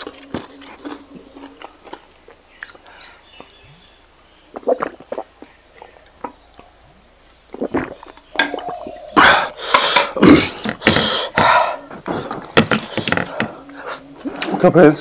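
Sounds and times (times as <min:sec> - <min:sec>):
loud wet chewing: 0:00.0 - 0:03.6, 0:04.5 - 0:14.6
lip smacks: 0:02.6 - 0:03.5.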